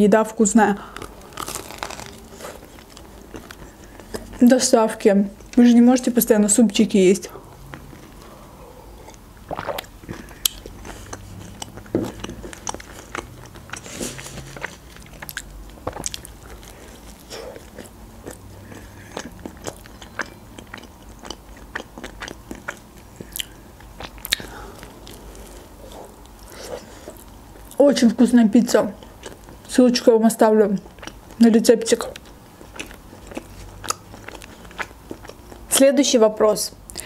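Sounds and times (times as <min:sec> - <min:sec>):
chewing and crunching: 0:00.8 - 0:06.1, 0:07.2 - 0:27.9, 0:28.7 - 0:29.8, 0:30.6 - 0:35.9
wet mouth clicks: 0:09.0 - 0:13.9.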